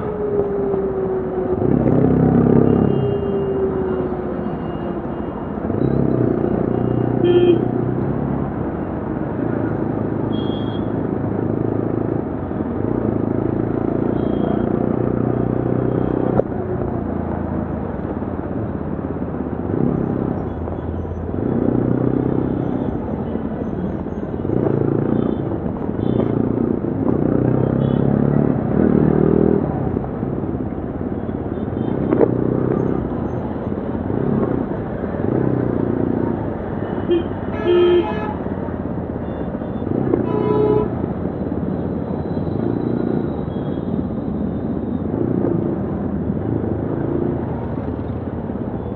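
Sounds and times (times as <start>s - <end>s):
vehicle horn toots: 7.0s - 7.8s, 37.0s - 38.5s, 40.2s - 41.0s.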